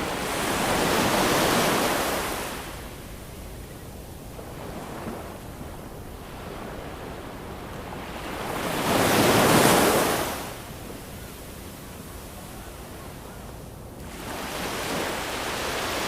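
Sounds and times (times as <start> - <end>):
wave breaking: 0.0 - 3.0
ocean waves on a shore: 0.0 - 16.0.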